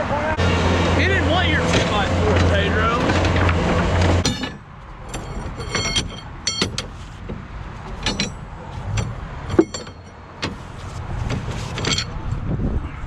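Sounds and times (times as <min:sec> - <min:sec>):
metallic clinks and knocks: 0:04.2 - 0:12.2.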